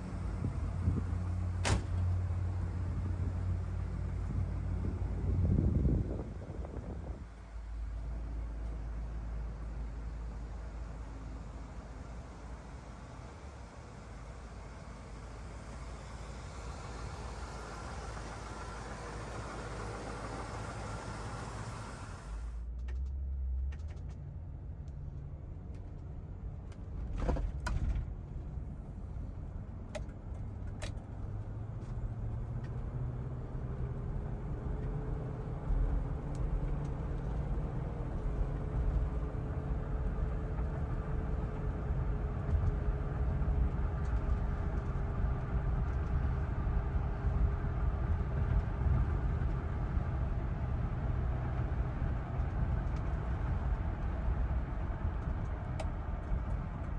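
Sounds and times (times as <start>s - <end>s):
faint steady whine: 0.0s - 22.7s
car engine rumbling: 0.0s - 56.9s.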